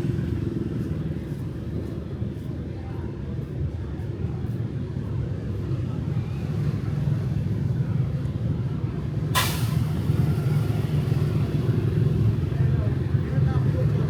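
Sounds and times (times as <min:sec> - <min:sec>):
street traffic rumble: 0:00.0 - 0:14.0
short sharp hiss: 0:09.4 - 0:09.9.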